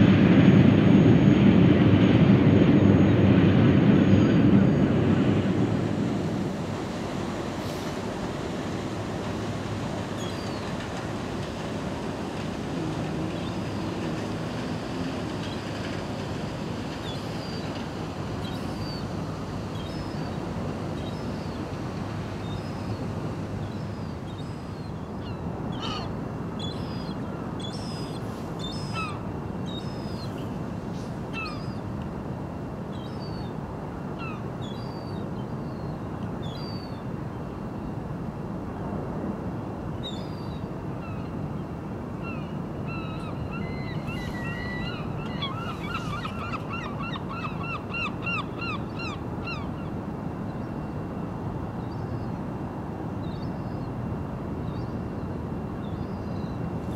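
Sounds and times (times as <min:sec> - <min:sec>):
steady low rumble: 0:00.0 - 0:08.9
birds calling: 0:42.2 - 0:49.9.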